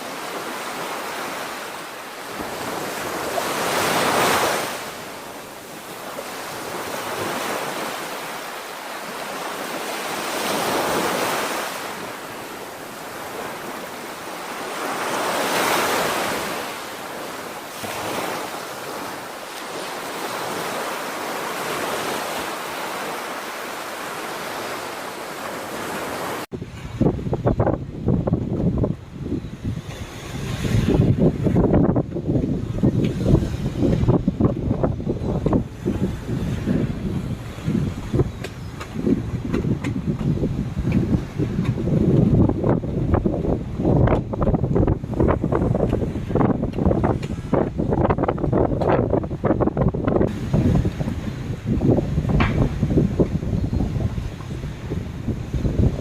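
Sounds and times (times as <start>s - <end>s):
surf washing onto beach: 0.0s - 56.0s
wind buffeting microphone: 25.4s - 56.0s.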